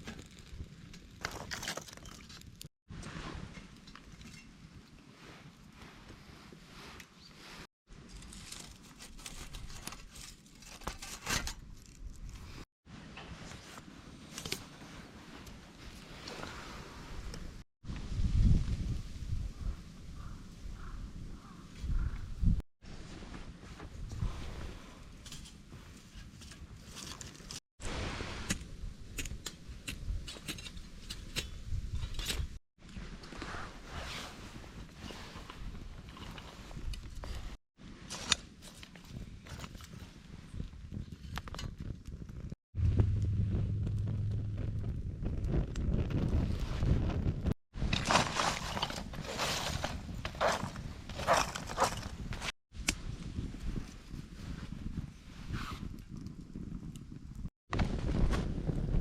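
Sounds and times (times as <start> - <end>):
dry grass and twigs crackling: 7.9 - 12.6, 47.8 - 52.5
low rumble: 42.8 - 47.5.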